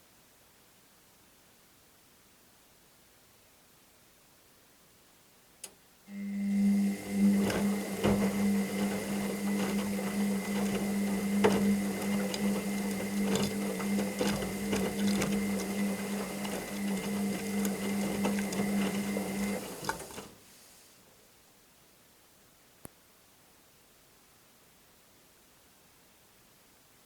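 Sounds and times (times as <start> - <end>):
washing machine motor hum: 6.1 - 20.4
load tumbling with clicks: 6.8 - 20.3.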